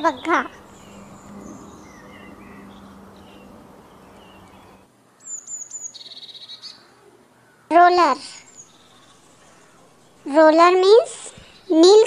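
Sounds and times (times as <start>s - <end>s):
woodpecker calling: 0.0s - 12.0s
low hum: 0.1s - 4.9s.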